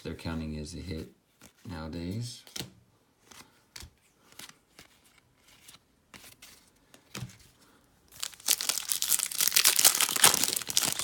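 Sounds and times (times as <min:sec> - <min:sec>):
foil wrapper tearing and crinkling: 0:08.1 - 0:11.0.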